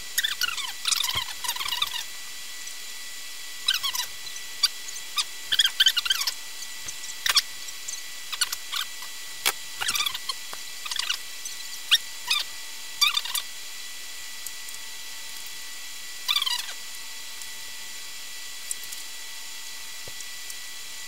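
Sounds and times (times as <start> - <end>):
small birds twittering: 3.6 - 9.1, 9.8 - 13.4, 16.3 - 16.8.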